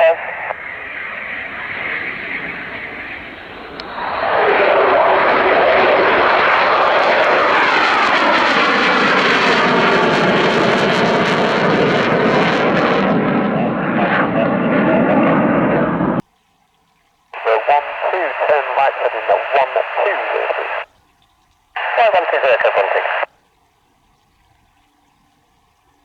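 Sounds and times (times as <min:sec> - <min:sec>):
jet passing close by: 0:00.0 - 0:16.2, 0:17.4 - 0:20.8.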